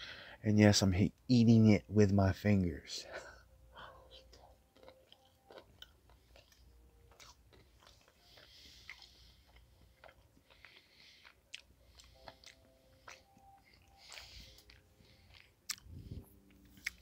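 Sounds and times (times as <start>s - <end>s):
wet chewing mouth clicks: 4.2s - 17.0s.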